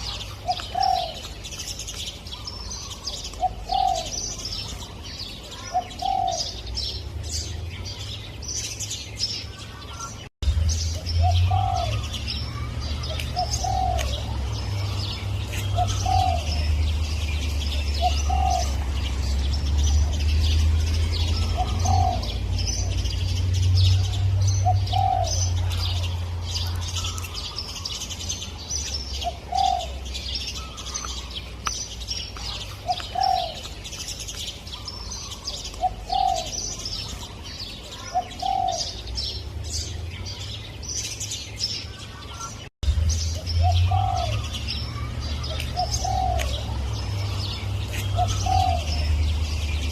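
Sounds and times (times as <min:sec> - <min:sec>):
dove cooing: 0:00.0 - 0:01.4, 0:02.4 - 0:06.8, 0:11.2 - 0:19.0, 0:21.1 - 0:23.0, 0:24.0 - 0:27.6, 0:29.2 - 0:31.0, 0:32.4 - 0:33.8, 0:34.8 - 0:39.1, 0:43.6 - 0:49.5
small birds twittering: 0:00.0 - 0:49.9.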